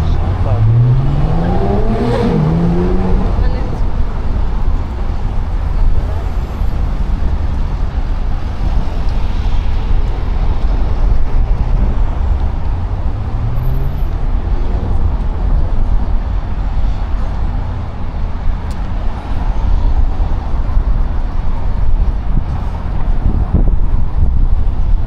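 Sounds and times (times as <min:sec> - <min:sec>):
vehicle engine rising in pitch: 0:00.0 - 0:07.6
road traffic rumble: 0:00.0 - 0:25.0.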